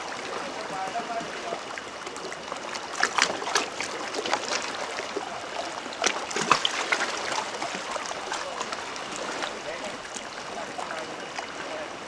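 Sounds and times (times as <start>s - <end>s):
seawater sloshing and splashing: 0.0s - 12.0s.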